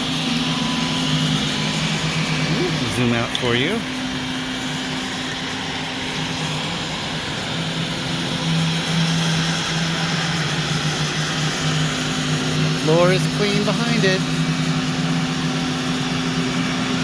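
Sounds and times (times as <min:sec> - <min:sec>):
floor-scrubbing robot motor drone: 0:00.0 - 0:16.8.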